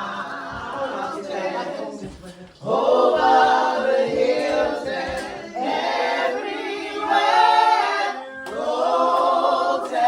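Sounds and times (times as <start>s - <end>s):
group singing a hymn: 0.0s - 10.0s.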